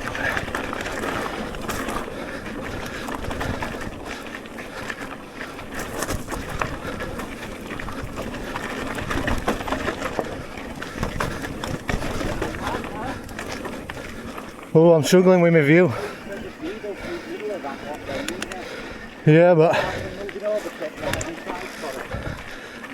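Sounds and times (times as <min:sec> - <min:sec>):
bike tyre noise: 0:00.0 - 0:22.9
bike knocks and rattles: 0:05.6 - 0:14.3
wind on microphone: 0:22.0 - 0:22.5.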